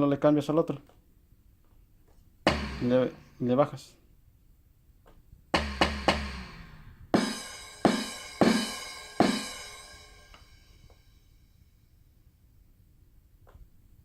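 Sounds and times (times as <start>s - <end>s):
electronic drum pad strikes: 2.4s - 3.4s, 5.5s - 11.0s.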